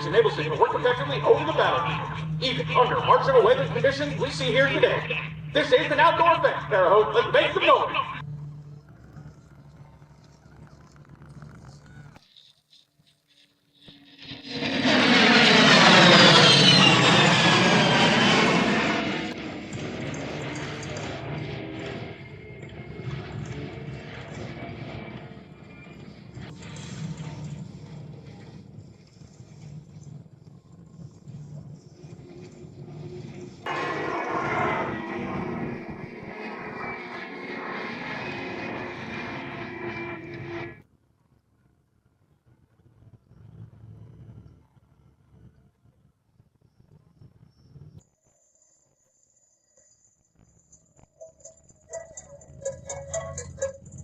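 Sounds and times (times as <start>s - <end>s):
jet passing at high speed: 0.0s - 8.2s, 13.8s - 29.9s, 31.0s - 40.8s.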